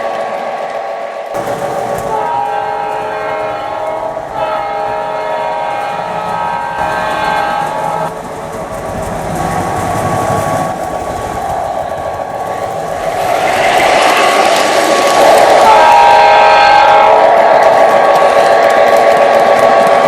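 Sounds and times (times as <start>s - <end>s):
train rail clatter: 0.0s - 20.0s
locomotive horn blasts: 1.4s - 8.9s, 13.3s - 17.5s.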